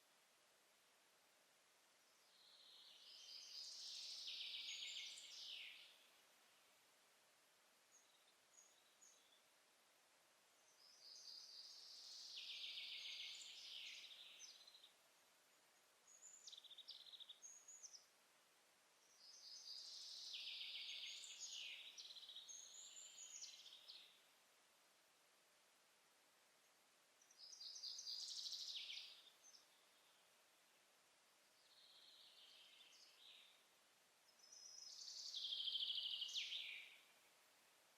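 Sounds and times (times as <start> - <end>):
faint background hiss: 0.0 - 37.9
songbird singing trilled songs: 2.1 - 6.1, 10.6 - 14.9, 19.0 - 24.2, 27.2 - 30.3, 31.5 - 33.6, 34.3 - 37.3.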